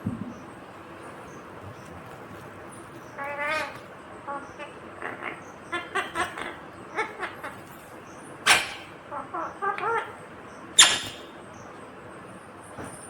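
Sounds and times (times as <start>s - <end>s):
parakeet chattering calls: 3.0s - 11.6s
parakeet sharp screeches: 8.4s - 9.0s, 10.8s - 11.4s.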